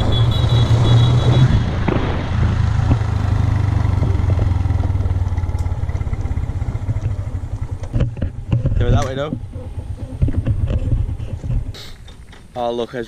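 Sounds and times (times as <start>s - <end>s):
motorbike engine drone: 0.0s - 11.8s
road noise: 0.0s - 13.0s.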